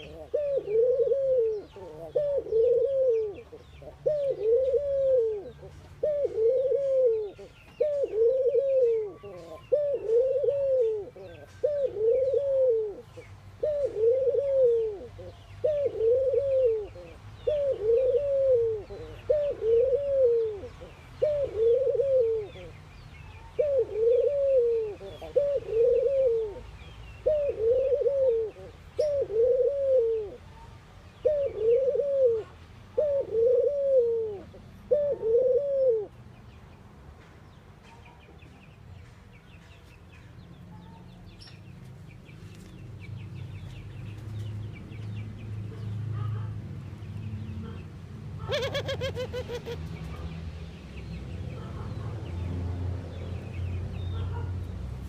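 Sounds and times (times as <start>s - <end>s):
doves cooing: 0.0s - 30.5s, 31.2s - 36.2s, 48.4s - 50.2s
small birds chirping: 0.0s - 33.5s, 36.0s - 55.0s.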